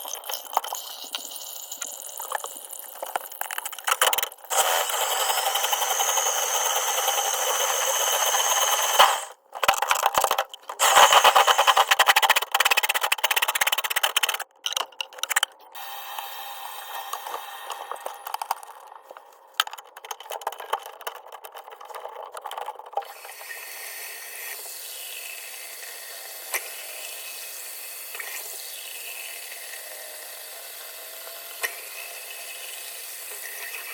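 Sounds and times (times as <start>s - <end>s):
faucet running into basin: 0.0s - 9.3s
clicks knocks and rattles: 9.5s - 10.8s, 12.1s - 15.7s, 19.5s - 23.0s.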